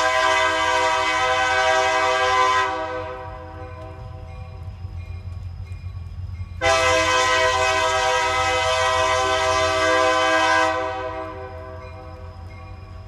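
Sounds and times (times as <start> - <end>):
locomotive air horn blast: 0.0 - 3.4, 6.6 - 11.7
low train rumble: 0.0 - 13.0.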